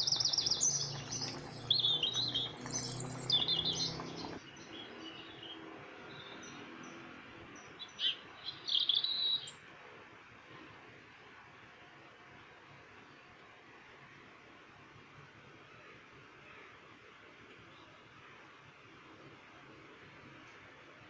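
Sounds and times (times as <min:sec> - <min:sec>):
small birds chirping and trilling: 0:00.0 - 0:09.7.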